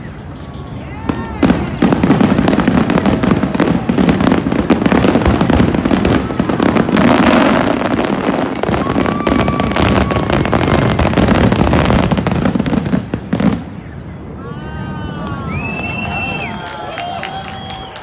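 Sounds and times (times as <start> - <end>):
fireworks bursts echoing: 1.0 - 14.1.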